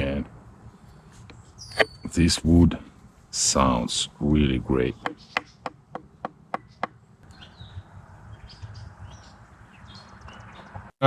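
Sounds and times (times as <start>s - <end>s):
outdoor ambience: 0.0s - 11.0s
birds chirping: 0.8s - 2.3s, 4.7s - 10.9s.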